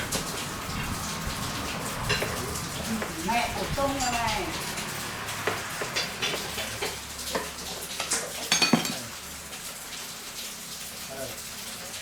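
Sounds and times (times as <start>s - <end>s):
metal tools clinking together: 8.1s - 9.0s.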